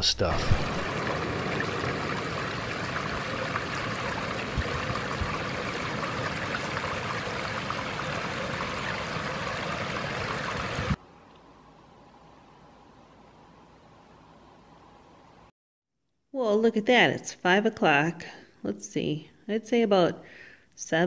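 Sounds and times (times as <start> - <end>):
stream water running: 0.3 - 11.0.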